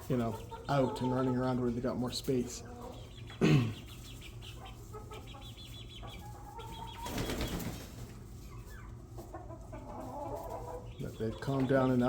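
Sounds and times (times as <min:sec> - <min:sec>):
poultry chirping: 0:00.0 - 0:12.0
wings flapping: 0:07.0 - 0:08.2.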